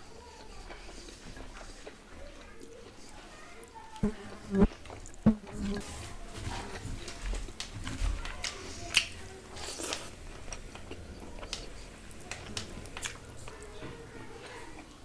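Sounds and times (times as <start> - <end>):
chewing with wet mouth smacks: 0.4 - 4.1, 8.3 - 15.0.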